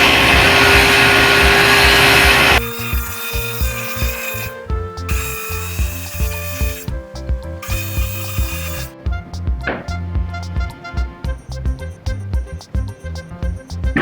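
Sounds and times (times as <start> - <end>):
hissing metalworking tool: 0.0 - 9.0
background music with steady beat: 0.0 - 14.0.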